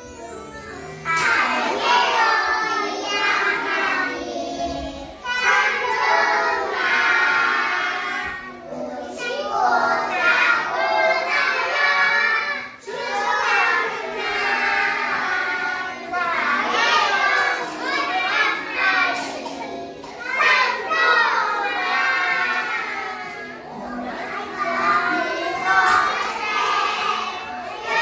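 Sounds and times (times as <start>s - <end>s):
young children singing: 0.0s - 28.0s.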